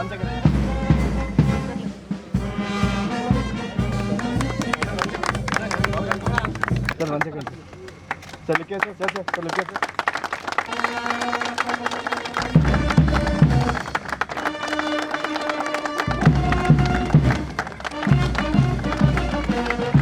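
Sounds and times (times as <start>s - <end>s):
sustained melody notes: 10.6s - 20.0s.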